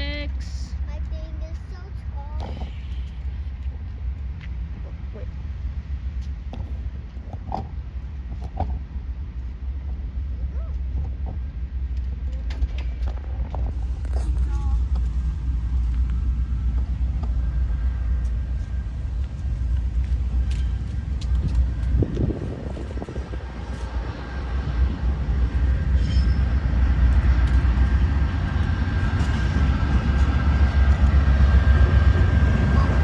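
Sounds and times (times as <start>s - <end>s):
diesel locomotive and train rumbling: 0.0s - 33.0s
high whine: 12.8s - 33.0s.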